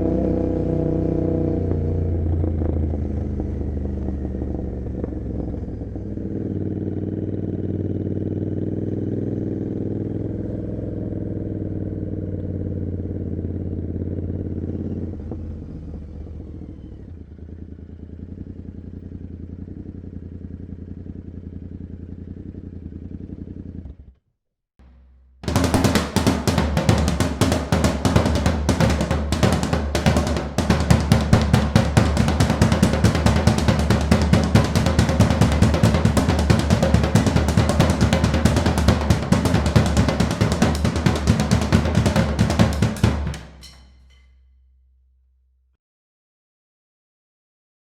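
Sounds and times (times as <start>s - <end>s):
motorcycle engine running: 0.0s - 24.2s, 24.8s - 44.1s
drum-heavy music: 24.8s - 44.0s.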